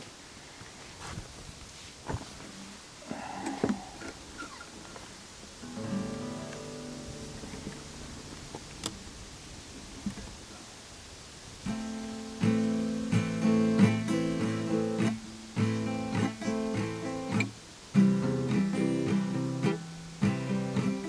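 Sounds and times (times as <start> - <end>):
acoustic guitar strumming chords: 5.6 - 9.3, 11.7 - 21.0.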